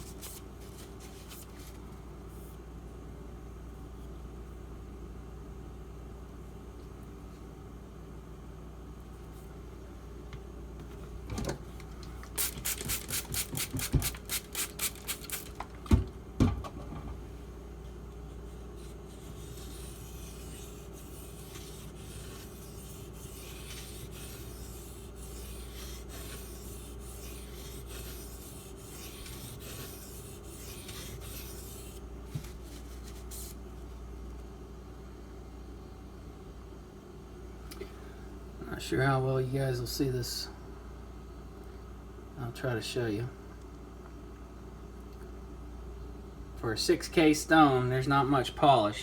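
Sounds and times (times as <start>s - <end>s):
blade scraping on whetstone: 19.2s - 32.0s.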